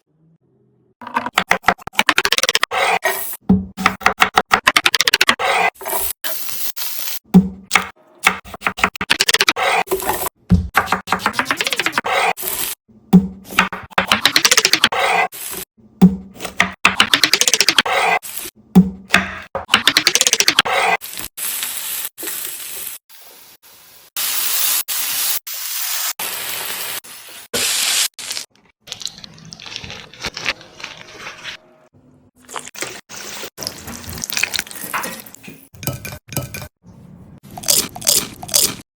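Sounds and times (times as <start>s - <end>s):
food sizzling in hot oil: 6.2s - 7.2s, 21.0s - 29.6s
crisp food crackling and crunching: 28.2s - 31.6s, 37.6s - 38.8s.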